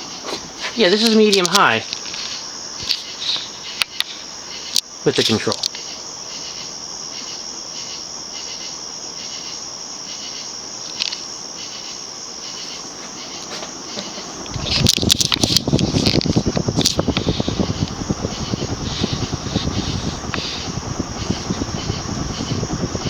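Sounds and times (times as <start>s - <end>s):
ceiling fan chirring: 0.0s - 23.0s
low hiss: 0.0s - 23.0s
wind buffeting microphone: 12.9s - 23.0s.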